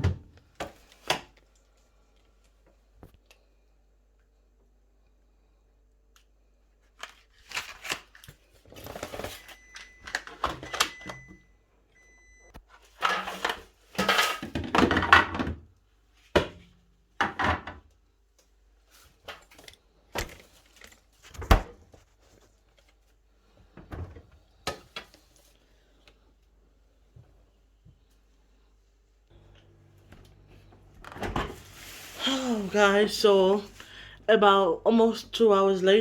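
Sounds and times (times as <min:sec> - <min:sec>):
packaging rustling: 0:07.0 - 0:10.3.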